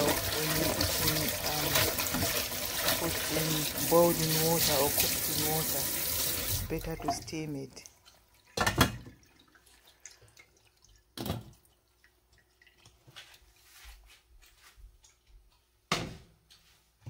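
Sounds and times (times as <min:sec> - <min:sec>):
water dripping in a sink: 0:00.0 - 0:13.5.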